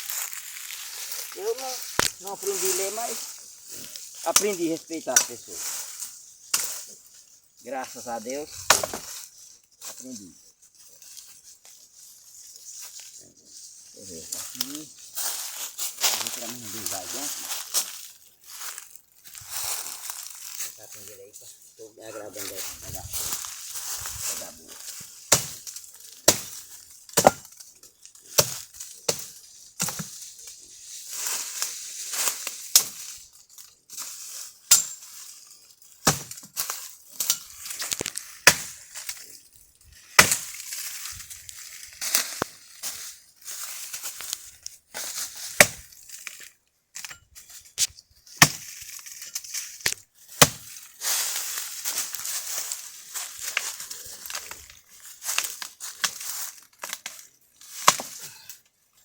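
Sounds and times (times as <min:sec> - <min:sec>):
dry twigs rustling: 0:00.0 - 0:59.0
firewood sticks knocking together: 0:01.1 - 0:03.3, 0:03.9 - 0:06.9, 0:07.8 - 0:10.2, 0:24.2 - 0:30.3, 0:32.1 - 0:33.2, 0:34.7 - 0:35.3, 0:36.0 - 0:39.3, 0:40.0 - 0:43.1, 0:43.9 - 0:50.8, 0:53.4 - 0:54.6, 0:55.2 - 0:58.6.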